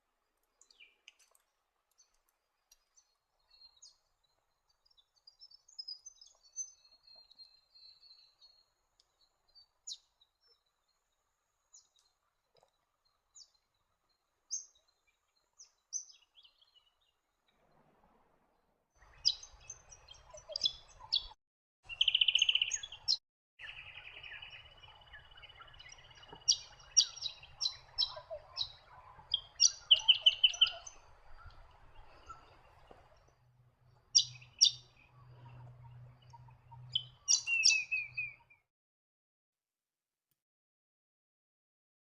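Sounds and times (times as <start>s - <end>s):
birds chirping: 19.0s - 38.6s.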